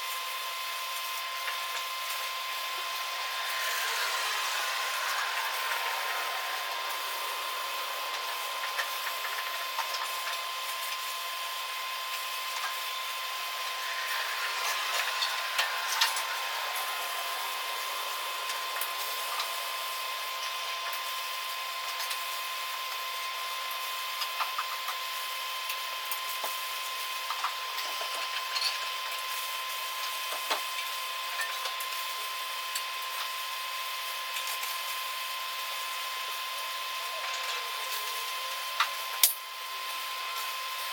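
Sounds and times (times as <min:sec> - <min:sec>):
machinery hiss and hum: 0:00.3 - 0:23.7.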